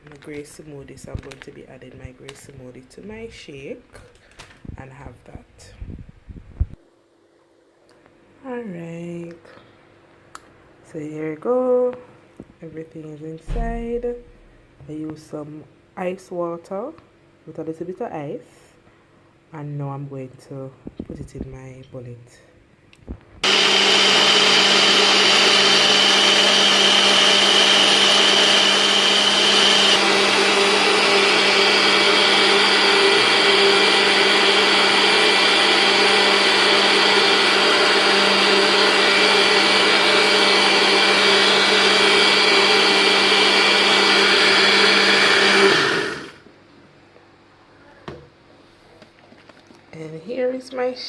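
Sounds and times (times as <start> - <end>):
blender running: 23.4 - 46.4.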